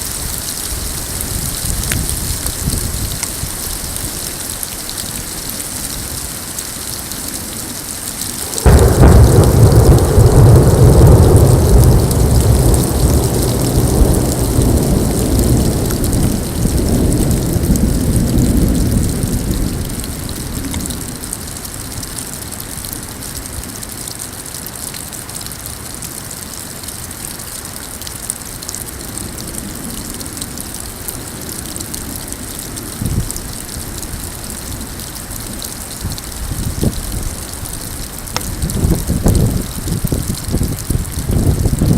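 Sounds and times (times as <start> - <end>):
hailstones ticking: 0.0 - 23.4, 28.0 - 41.9
rain and hail hissing: 0.0 - 41.9
thunder rumbling: 7.4 - 22.0, 29.0 - 41.9.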